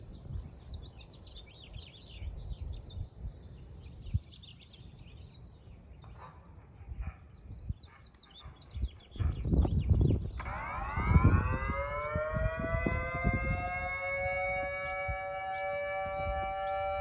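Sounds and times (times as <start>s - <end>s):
birds chirping and calling: 0.0s - 17.0s
gusty low rumble: 9.2s - 13.8s.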